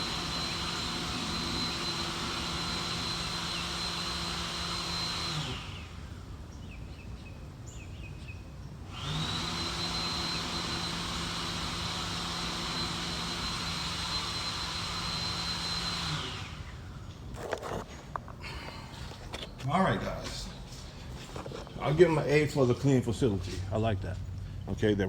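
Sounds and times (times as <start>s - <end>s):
electric hand dryer blowing: 0.0s - 6.1s, 8.9s - 16.7s.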